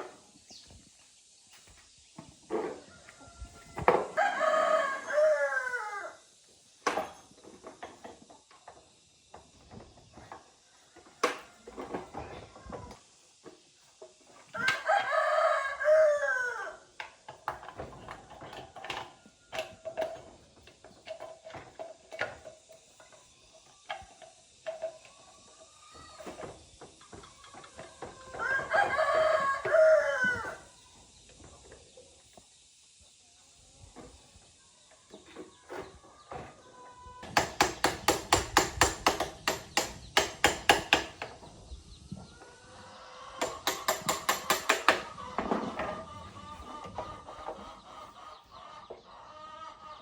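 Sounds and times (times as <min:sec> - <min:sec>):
rooster crowing: 0:02.9 - 0:06.2, 0:14.6 - 0:16.8, 0:28.2 - 0:30.7
sharp clicks and knocks: 0:43.4 - 0:45.1.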